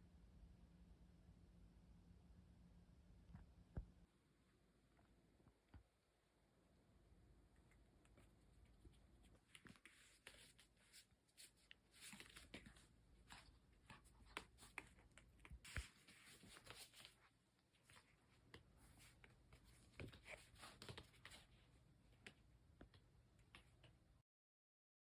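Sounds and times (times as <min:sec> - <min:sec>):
soft rustles: 0:07.6 - 0:24.0.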